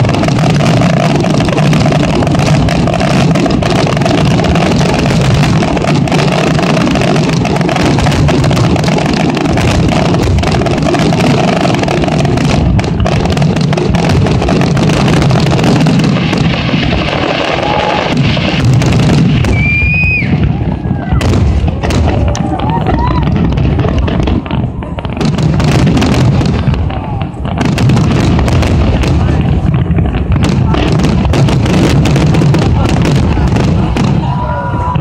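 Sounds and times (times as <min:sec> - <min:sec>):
fireworks bursting and crackling: 0:00.0 - 0:35.0
sharp firework bangs: 0:00.0 - 0:35.0.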